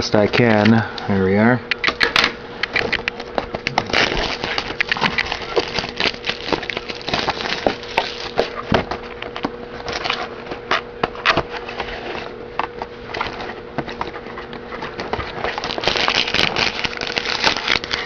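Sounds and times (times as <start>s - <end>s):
faint steady hum: 0.0s - 18.0s
card packs rustling and scraping: 2.8s - 18.0s.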